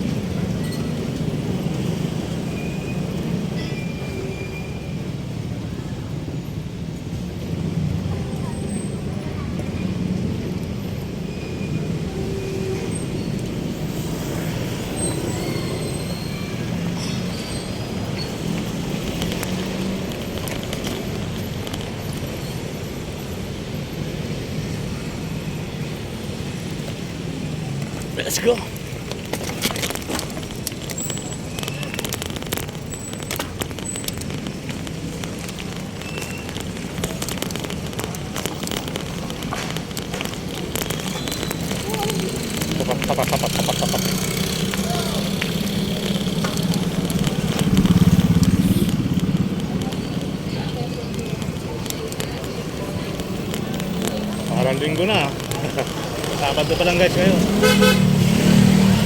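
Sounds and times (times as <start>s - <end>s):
road traffic rumble: 0.0s - 59.0s
faint high squeals: 11.2s - 18.4s.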